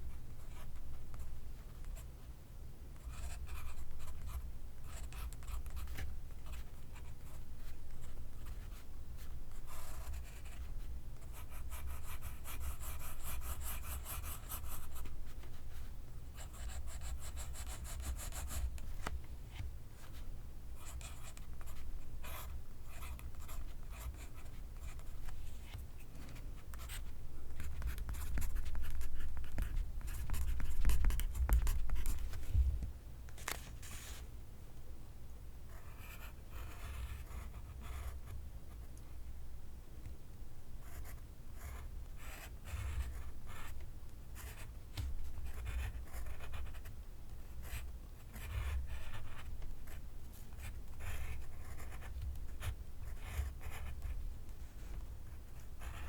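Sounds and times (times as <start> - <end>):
pencil writing on paper: 50.6 - 54.2.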